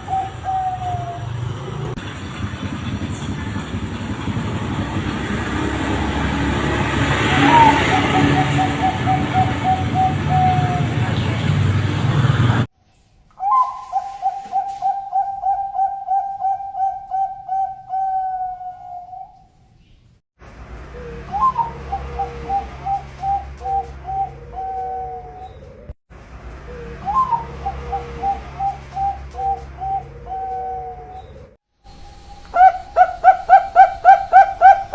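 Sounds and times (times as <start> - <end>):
second dove cooing lower: 0.0 - 1.8, 13.4 - 19.4, 21.3 - 25.7, 26.8 - 34.9
dove cooing: 0.0 - 2.0, 7.2 - 11.2, 13.4 - 19.5, 21.0 - 25.8, 26.7 - 34.9.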